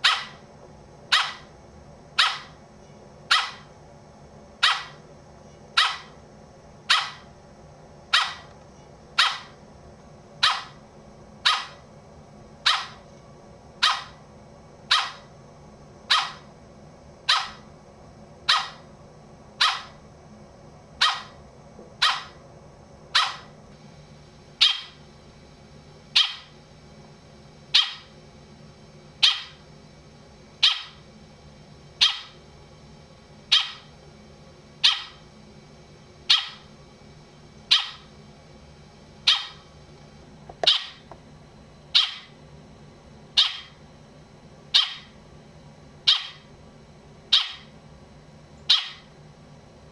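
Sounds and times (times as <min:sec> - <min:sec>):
sharp animal call: 0:00.0 - 0:00.4, 0:01.1 - 0:01.5, 0:02.2 - 0:02.6, 0:03.3 - 0:03.7, 0:04.6 - 0:05.0, 0:05.8 - 0:06.2, 0:06.9 - 0:07.2, 0:08.1 - 0:08.5, 0:09.2 - 0:09.5, 0:10.4 - 0:10.8, 0:11.4 - 0:11.8, 0:12.6 - 0:13.0, 0:13.8 - 0:14.2, 0:14.9 - 0:15.3, 0:16.1 - 0:16.4, 0:17.3 - 0:17.6, 0:18.5 - 0:18.8, 0:19.6 - 0:20.0, 0:21.0 - 0:21.4, 0:22.0 - 0:22.4, 0:23.2 - 0:23.5, 0:24.6 - 0:25.0, 0:26.2 - 0:26.5, 0:27.8 - 0:28.1, 0:29.2 - 0:29.6, 0:32.0 - 0:32.4, 0:33.5 - 0:33.8, 0:34.8 - 0:35.2, 0:36.3 - 0:36.6, 0:37.7 - 0:38.0, 0:39.3 - 0:39.6, 0:42.0 - 0:42.3, 0:43.4 - 0:43.8, 0:44.8 - 0:45.1, 0:46.1 - 0:46.4, 0:47.3 - 0:47.7, 0:48.7 - 0:49.0.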